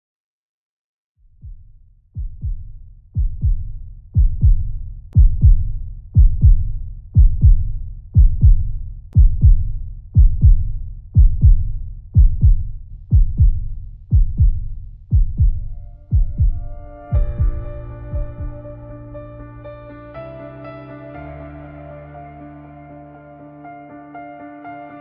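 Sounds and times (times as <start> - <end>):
slow heartbeat thumps: 1.3 - 19.2.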